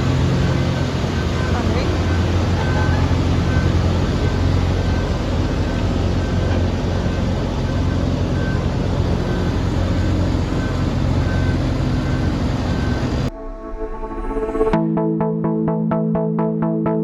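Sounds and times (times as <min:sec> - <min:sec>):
combine harvester engine running: 0:00.0 - 0:13.3
faint high beep: 0:00.0 - 0:14.7.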